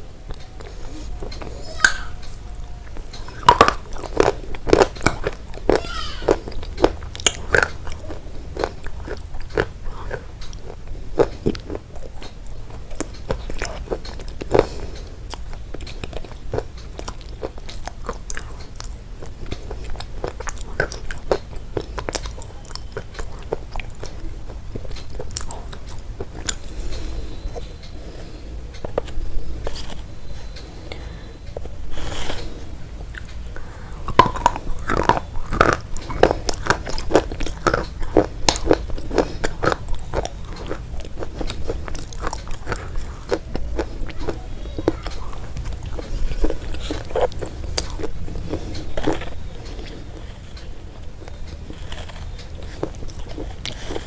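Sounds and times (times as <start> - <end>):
chewing crunchy food: 0.0 - 54.0.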